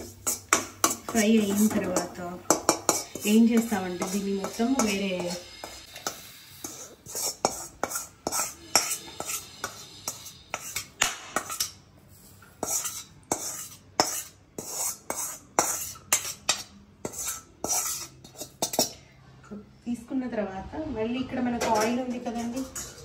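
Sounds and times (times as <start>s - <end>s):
spoon scraping and knocking a pan: 0.0s - 19.0s, 21.6s - 23.0s.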